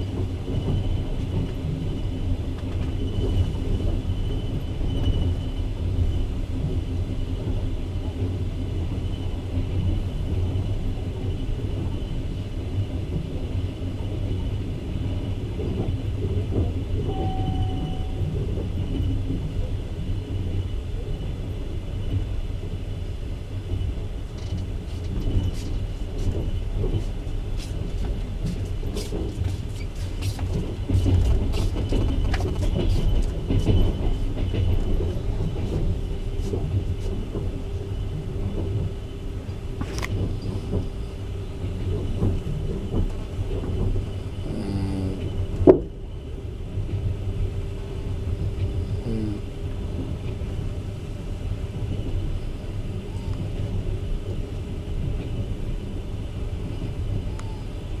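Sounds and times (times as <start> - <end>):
train rumbling on rails: 0.0 - 58.0
train wheel clicks: 24.2 - 44.4.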